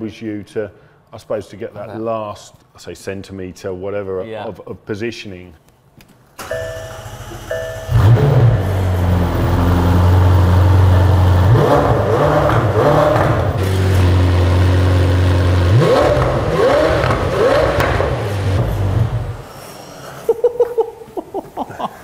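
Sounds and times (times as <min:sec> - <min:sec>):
car engine starting and idling: 0:06.4 - 0:19.6
engine rev blips: 0:06.4 - 0:19.8.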